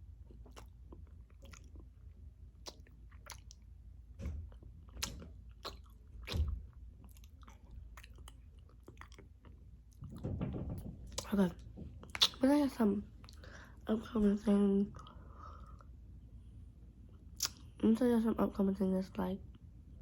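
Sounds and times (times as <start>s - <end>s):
person chewing food: 0.0s - 10.0s
wet mouth clicks: 0.5s - 1.9s, 2.6s - 3.7s, 5.0s - 9.3s, 12.0s - 12.4s, 17.4s - 17.7s.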